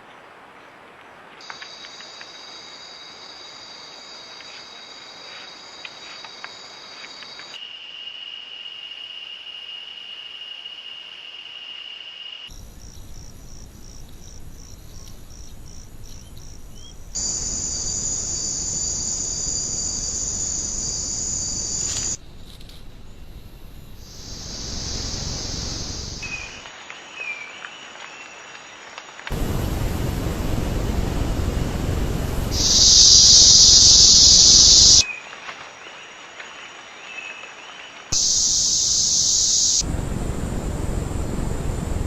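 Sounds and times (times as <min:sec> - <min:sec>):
insects buzzing: 0:01.4 - 0:22.2, 0:23.5 - 0:27.9, 0:28.5 - 0:35.1, 0:37.6 - 0:42.0
insects chirping: 0:01.4 - 0:22.3, 0:23.1 - 0:42.0
hiss: 0:17.1 - 0:22.2, 0:23.8 - 0:26.8, 0:29.2 - 0:35.1, 0:38.2 - 0:42.0
shrill insect drone: 0:17.2 - 0:22.2, 0:24.1 - 0:26.6, 0:29.4 - 0:35.0, 0:38.2 - 0:42.0.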